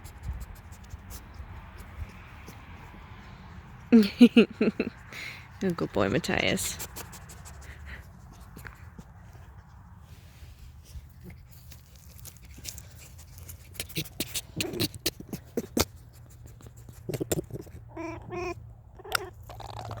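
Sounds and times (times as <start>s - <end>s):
pet animal whining: 13.6s - 20.0s.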